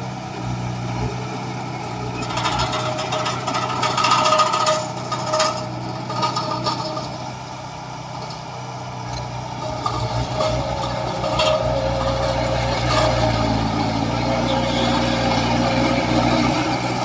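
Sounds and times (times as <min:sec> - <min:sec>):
diesel construction machinery running: 0:00.0 - 0:17.0
metallic clanks and knocks: 0:02.1 - 0:07.3, 0:09.1 - 0:17.0.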